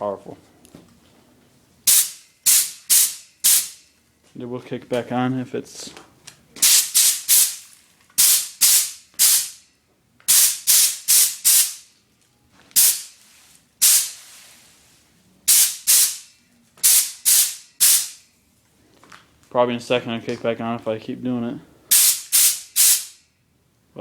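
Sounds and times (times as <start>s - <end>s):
air blowgun blasts: 1.9s - 3.8s, 6.6s - 7.6s, 8.2s - 9.6s, 10.3s - 11.8s, 13.8s - 14.2s, 15.5s - 16.2s, 16.8s - 18.2s, 21.9s - 23.2s.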